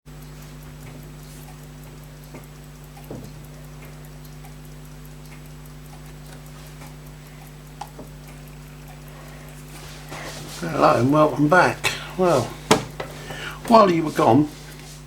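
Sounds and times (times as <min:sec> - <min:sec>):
pocket watch ticking: 0:00.1 - 0:14.5
low steady hum: 0:00.1 - 0:15.0
soft knocks: 0:12.6 - 0:13.2.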